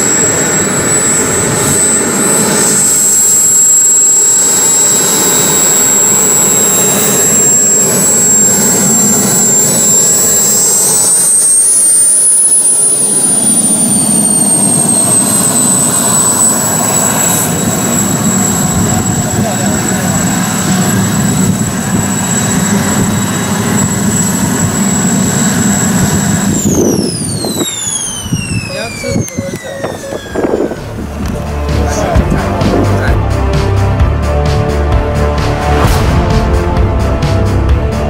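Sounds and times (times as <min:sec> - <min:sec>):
model jet engines whining: 0:00.0 - 0:36.0.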